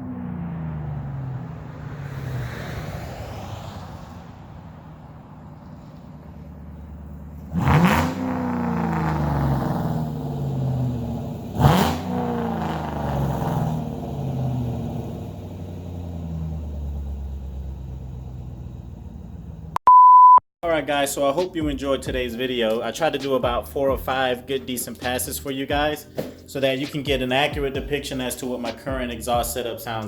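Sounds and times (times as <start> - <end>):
car engine accelerating past: 0.0 - 19.4.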